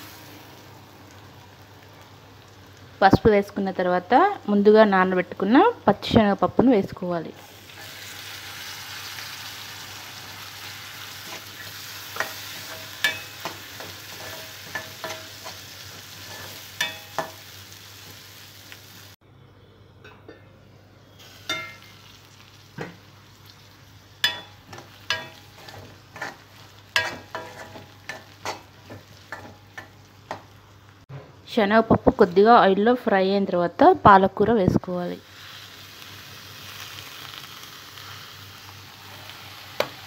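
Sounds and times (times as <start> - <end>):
dal and onions sizzling in oil: 0.0 - 19.2, 21.0 - 40.0
steel spoon clinking against pan: 12.2 - 15.6, 16.2 - 17.4, 21.4 - 21.9, 24.2 - 26.4, 27.0 - 30.4.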